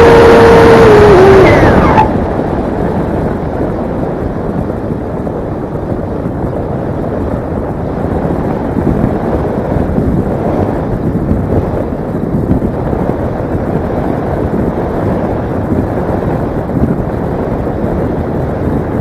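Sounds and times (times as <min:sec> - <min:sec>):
high motor whine: 0:00.0 - 0:02.5
wind buffeting microphone: 0:00.0 - 0:19.0.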